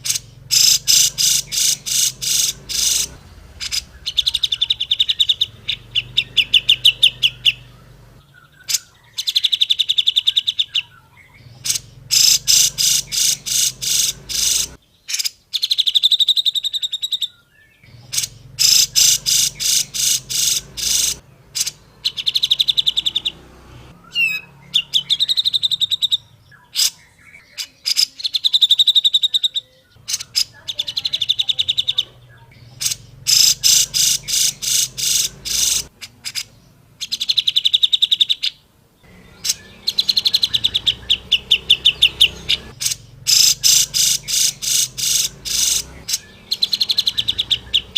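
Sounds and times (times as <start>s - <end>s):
bulbul harsh chattering song: 0.0s - 47.9s.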